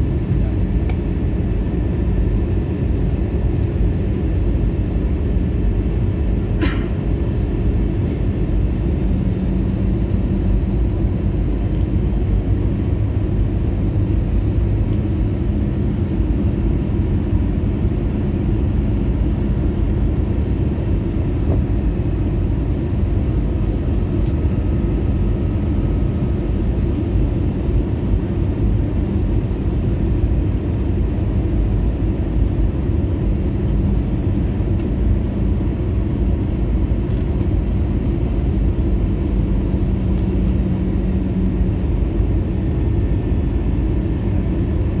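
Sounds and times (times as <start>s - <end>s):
airplane cabin airflow rush: 0.0s - 45.0s
low engine hum: 0.0s - 45.0s.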